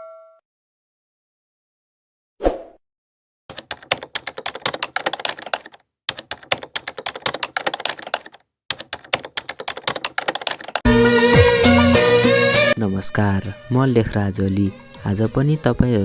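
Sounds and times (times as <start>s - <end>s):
computer keyboard typing: 3.5s - 10.9s.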